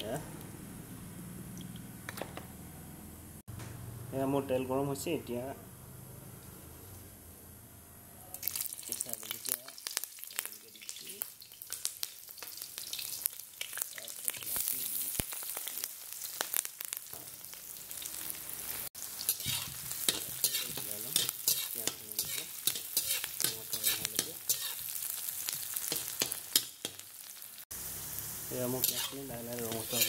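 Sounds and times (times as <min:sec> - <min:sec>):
onions sizzling in hot oil: 0:08.4 - 0:30.0
spatula scraping a pan: 0:19.2 - 0:24.9, 0:28.8 - 0:30.0.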